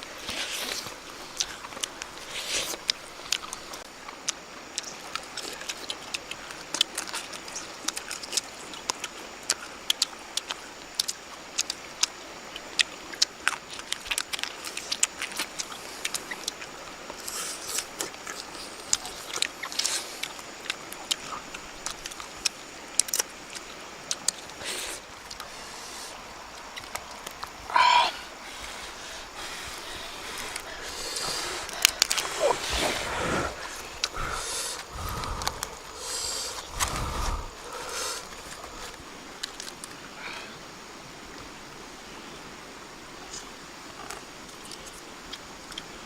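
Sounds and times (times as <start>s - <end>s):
person chewing meat: 12.5s - 24.4s, 33.9s - 39.8s.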